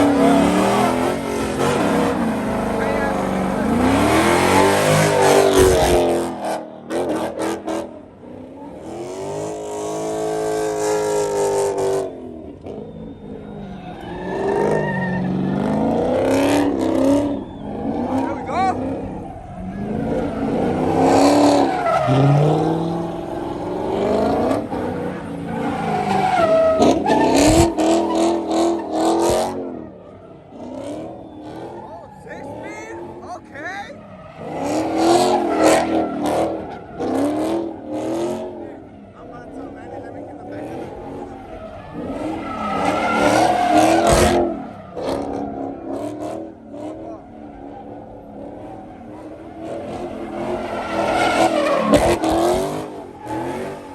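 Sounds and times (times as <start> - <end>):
car engine revving: 0.0 - 53.9
tires squealing and skidding: 0.0 - 53.9
tyres squealing: 12.7 - 16.0.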